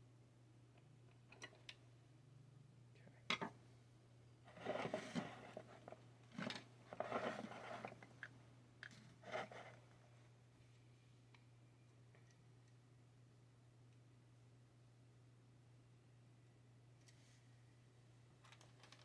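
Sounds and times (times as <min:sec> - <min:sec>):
rustling handling noise: 0:04.5 - 0:08.3, 0:08.9 - 0:09.9.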